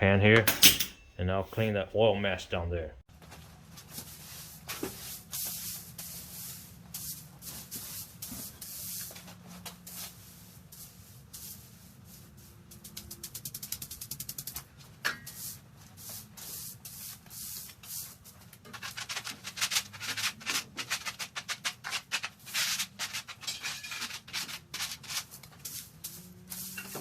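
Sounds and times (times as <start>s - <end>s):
wiping strokes on floor: 3.8s - 27.0s.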